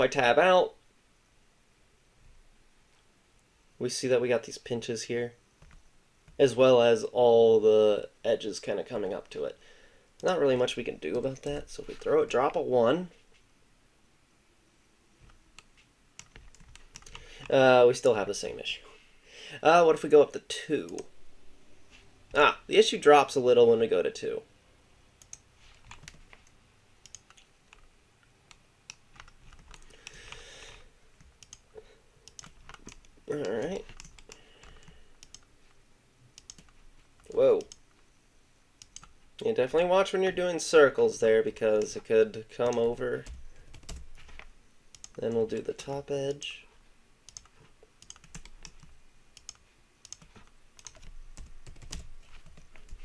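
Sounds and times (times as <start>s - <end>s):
soft hiss: 0.0s - 53.0s
computer keyboard clicks: 16.2s - 17.5s, 25.2s - 27.9s, 28.9s - 30.4s, 32.2s - 35.5s, 36.4s - 37.8s, 47.3s - 53.0s
keyboard key presses: 16.2s - 17.5s.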